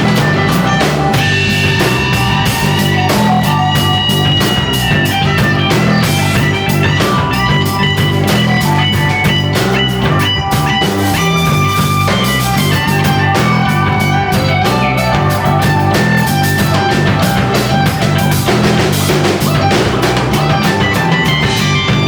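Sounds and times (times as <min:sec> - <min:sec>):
bass guitar: 0:00.0 - 0:22.0
drum kit beat: 0:00.0 - 0:22.0
electric guitar lines: 0:00.0 - 0:22.0.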